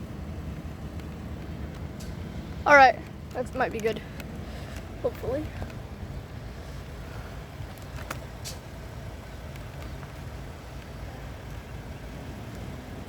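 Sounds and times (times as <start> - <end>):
low engine rumble: 0.0 - 13.0
faint clicks: 3.0 - 5.8.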